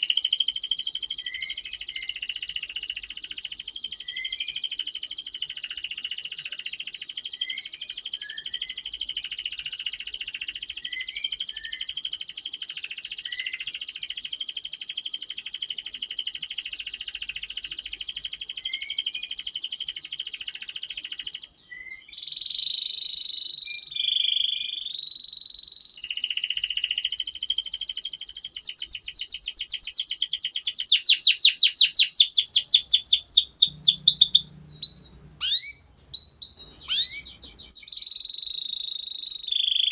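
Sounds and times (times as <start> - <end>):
canary singing: 21.2 - 39.9.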